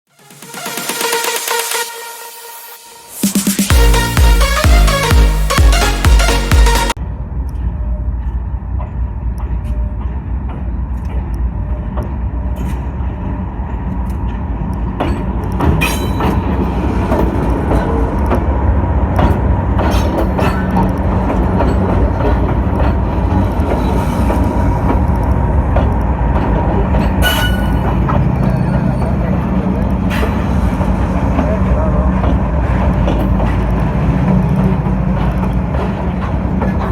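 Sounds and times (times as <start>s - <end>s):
train rumbling: 7.0s - 36.9s
train wheels clanking: 8.8s - 36.9s.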